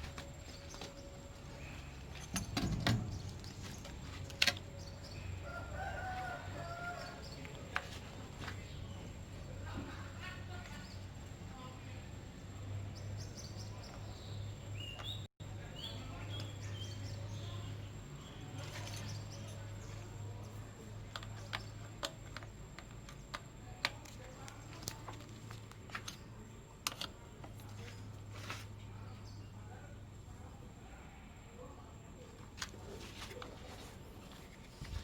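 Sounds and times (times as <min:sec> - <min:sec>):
bird chirps: 0:12.9 - 0:19.6.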